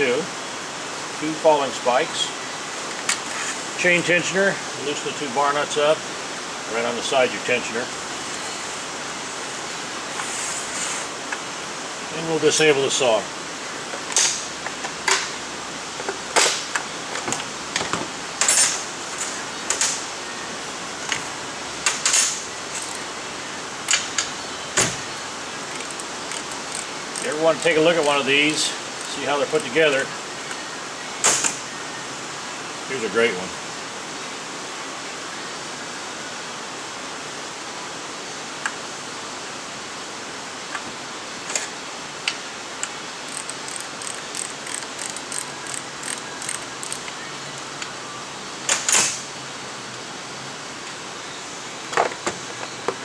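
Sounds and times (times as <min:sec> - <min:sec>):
steady background hiss: 0:00.0 - 0:52.2
hand tools clicking on chainsaw: 0:14.0 - 0:15.3, 0:16.0 - 0:17.5, 0:21.9 - 0:23.2, 0:23.9 - 0:30.7, 0:42.8 - 0:47.9.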